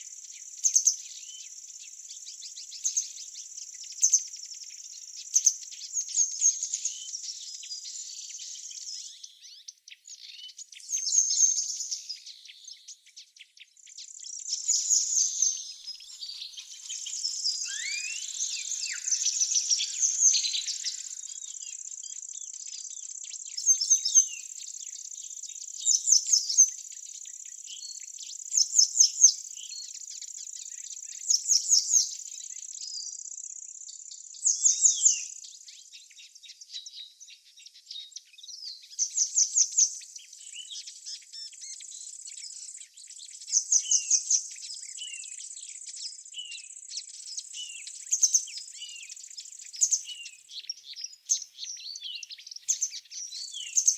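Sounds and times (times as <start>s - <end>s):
songbirds chirping and singing: 0.0s - 53.9s
high-pitched insect trill: 14.7s - 22.4s.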